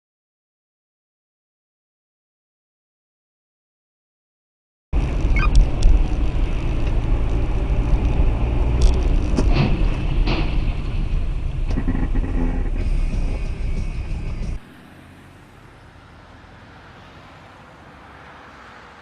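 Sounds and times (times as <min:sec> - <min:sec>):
road and engine rumble: 0:05.0 - 0:19.0.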